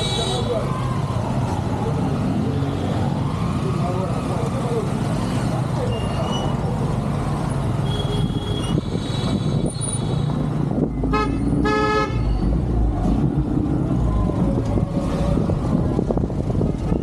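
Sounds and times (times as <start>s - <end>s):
road traffic noise: 0.0s - 17.0s
vehicle horn toots: 11.1s - 12.3s.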